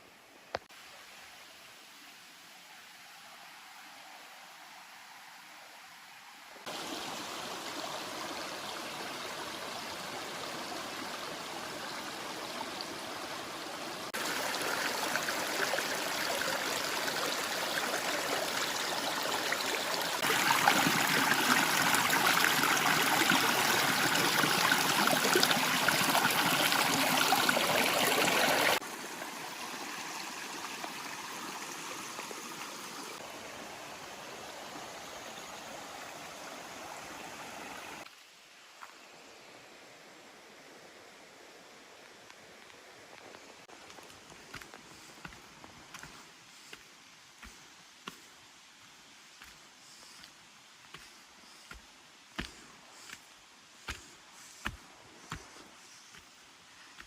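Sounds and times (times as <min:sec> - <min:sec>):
waterfall rushing and splashing: 0:06.6 - 0:38.1.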